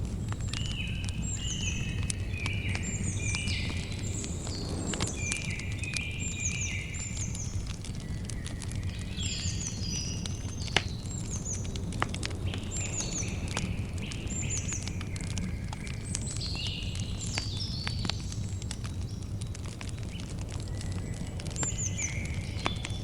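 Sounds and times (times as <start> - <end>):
low steady rumble: 0.0 - 8.0
campfire crackling and popping: 0.0 - 23.0
birds chirping: 0.3 - 19.2, 20.0 - 23.0.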